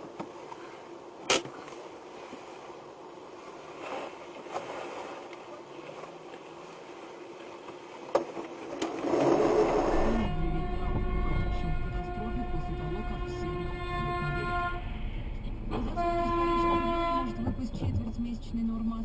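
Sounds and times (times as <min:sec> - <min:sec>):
faint vehicle running noise: 0:09.5 - 0:19.0.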